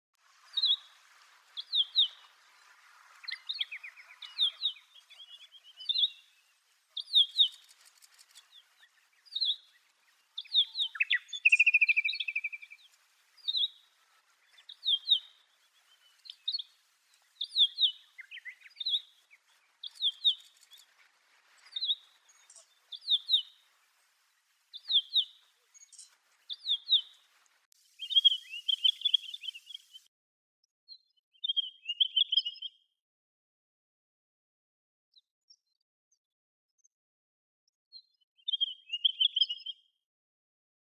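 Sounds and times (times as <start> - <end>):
bird chirps: 0.4 - 24.1, 24.7 - 30.1, 30.9 - 32.8, 38.0 - 39.8
buzzy bird trill: 27.9 - 30.1.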